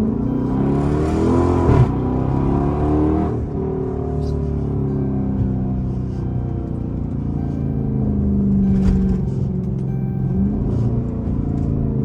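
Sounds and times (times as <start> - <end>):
music playing: 0.0 - 11.5
car engine low rumble: 0.0 - 12.0.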